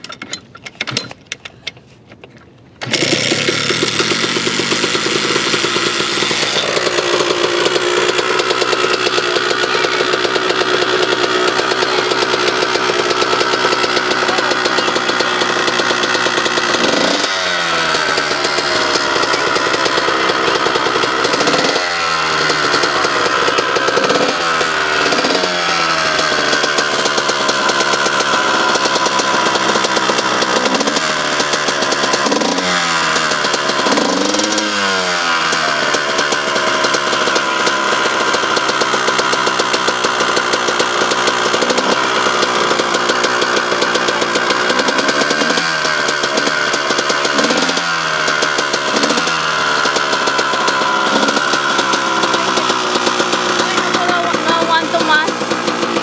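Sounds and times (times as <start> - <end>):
dirt bike engine revving: 2.8 - 56.0.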